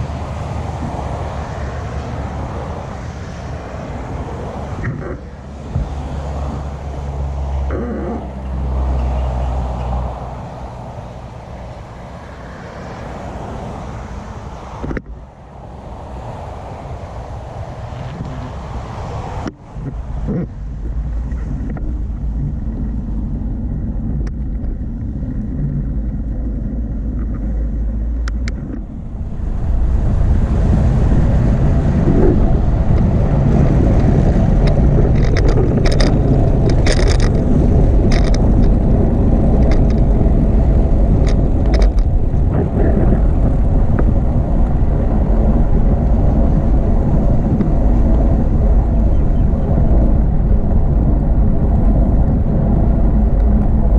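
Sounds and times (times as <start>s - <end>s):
wind buffeting microphone: 0.0s - 53.9s
sharp clicks and rattles: 32.1s - 44.1s.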